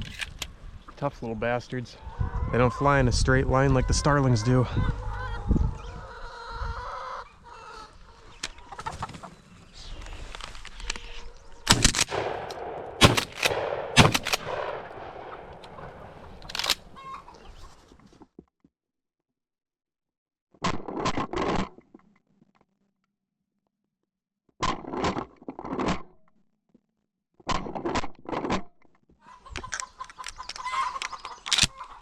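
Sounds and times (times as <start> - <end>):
chickens clucking: 2.0 - 10.1, 29.3 - 32.0
gunshots: 11.7 - 17.0.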